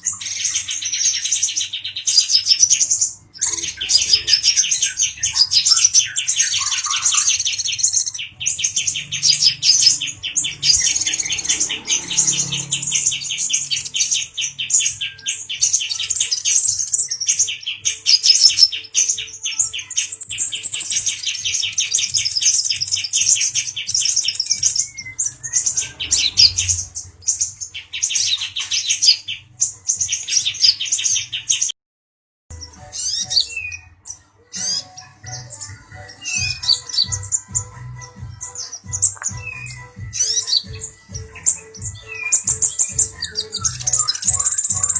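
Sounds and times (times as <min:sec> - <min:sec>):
sunbird trilling chatter: 0:18.0 - 0:29.3, 0:34.6 - 0:44.9.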